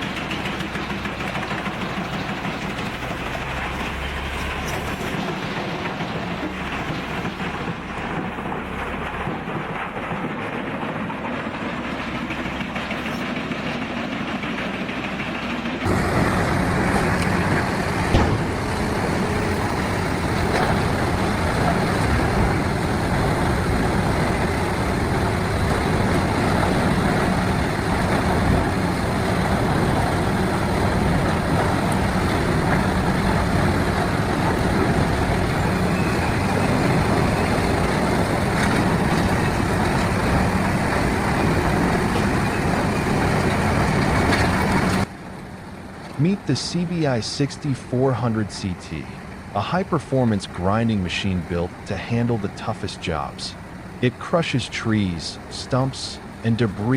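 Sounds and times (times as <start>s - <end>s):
wood-chipping machinery running: 0.0s - 46.4s
sharp bang: 18.0s - 18.6s.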